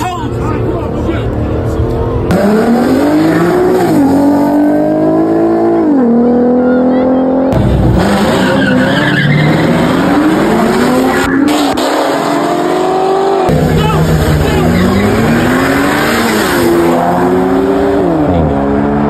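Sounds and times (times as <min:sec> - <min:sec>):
car engine revving: 0:00.4 - 0:19.0
tyres squealing and skidding: 0:08.0 - 0:12.3, 0:13.6 - 0:17.1.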